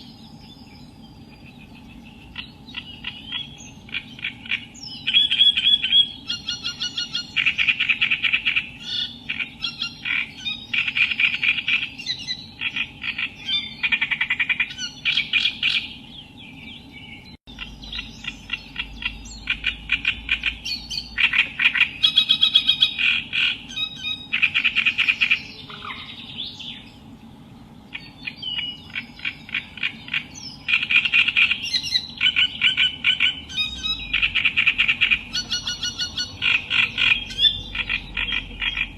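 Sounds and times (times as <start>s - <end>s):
reed warbler singing: 0.0s - 38.9s.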